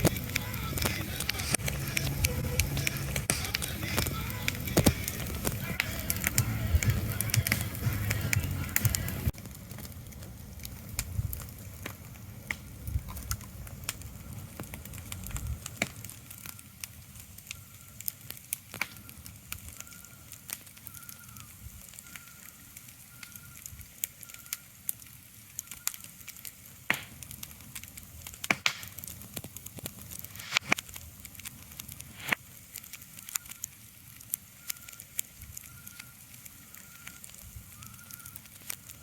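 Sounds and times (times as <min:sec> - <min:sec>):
low rumble: 0:00.0 - 0:15.7
crackling pops and clicks: 0:00.0 - 0:39.0.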